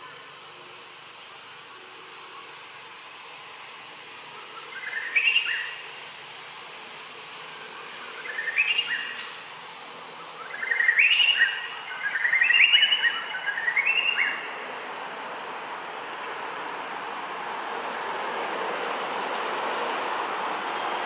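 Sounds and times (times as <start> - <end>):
high insect drone: 0.0 - 21.0
bird singing: 4.5 - 5.9, 7.5 - 9.5, 10.1 - 14.6.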